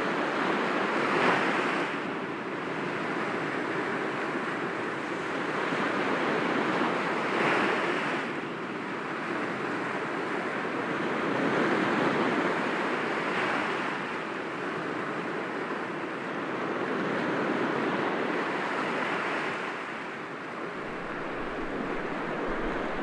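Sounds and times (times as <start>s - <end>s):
waves breaking against rocks: 20.8s - 23.0s.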